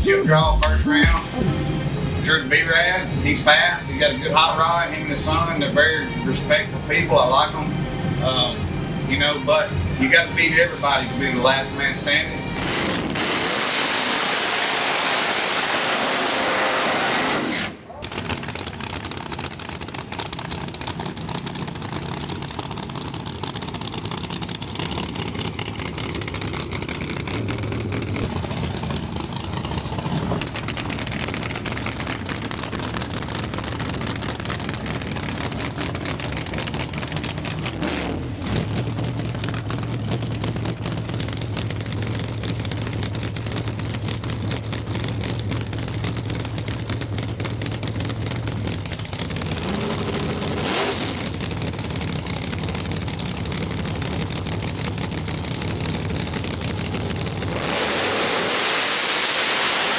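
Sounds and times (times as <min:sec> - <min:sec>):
race car engine running: 0:00.0 - 0:59.9
low steady hum: 0:06.5 - 0:13.1.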